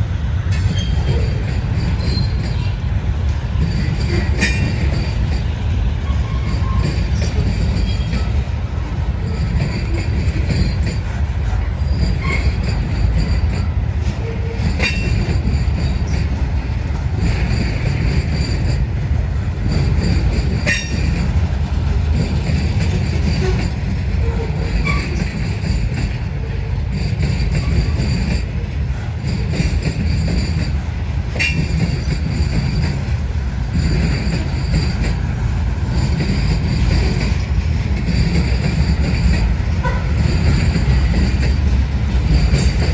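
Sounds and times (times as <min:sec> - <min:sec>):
freight train rumbling: 0:00.0 - 0:42.9
wheels clicking over rail joints: 0:00.5 - 0:42.9
faint high wheel squeal: 0:00.6 - 0:02.9, 0:03.7 - 0:08.4, 0:09.2 - 0:16.3, 0:22.6 - 0:28.5.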